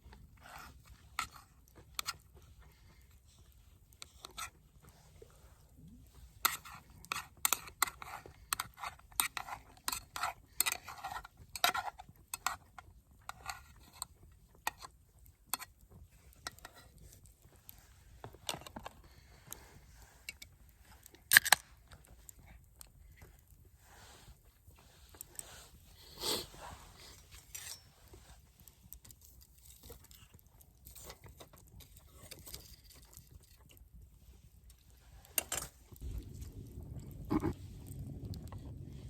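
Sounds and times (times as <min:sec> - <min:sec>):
clicks and clinks of small objects: 0:06.4 - 0:23.6, 0:27.0 - 0:38.8.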